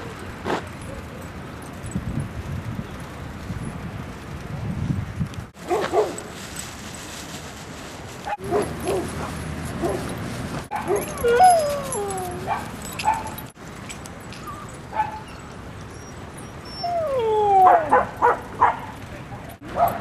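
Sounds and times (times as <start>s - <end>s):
dogs yipping and barking: 5.6s - 6.4s, 8.2s - 13.6s, 14.2s - 20.0s
dogs yowling: 10.7s - 13.4s, 14.4s - 19.0s.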